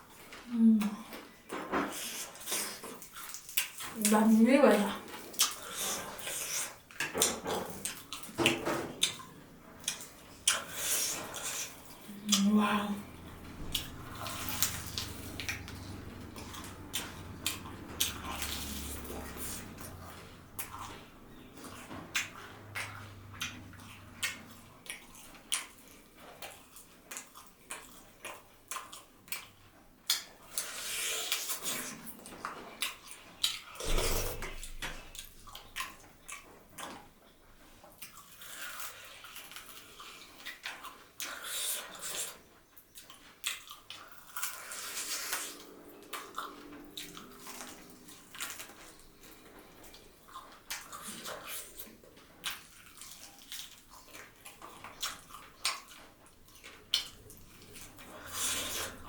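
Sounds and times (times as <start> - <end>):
wet chewing and lip-smacking: 0.1 - 59.0.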